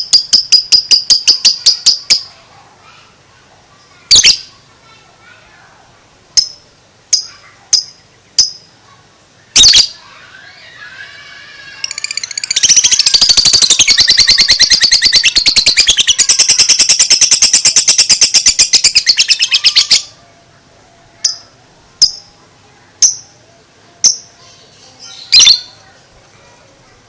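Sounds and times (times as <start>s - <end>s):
lovebird chirping and chattering: 0.0s - 2.3s, 4.1s - 4.6s, 6.3s - 8.8s, 9.5s - 10.0s, 11.7s - 20.2s, 21.2s - 22.3s, 23.0s - 23.4s, 24.0s - 25.8s.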